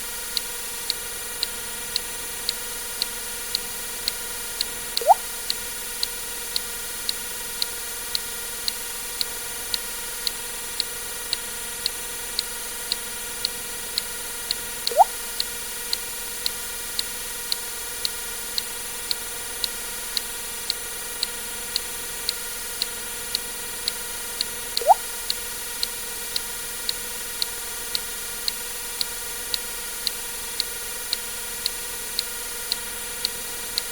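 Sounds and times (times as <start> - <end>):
sharp high click: 5.0 - 5.3, 14.9 - 15.5, 24.8 - 25.4
water drip plink: 5.0 - 5.3, 14.9 - 15.2, 24.8 - 25.1.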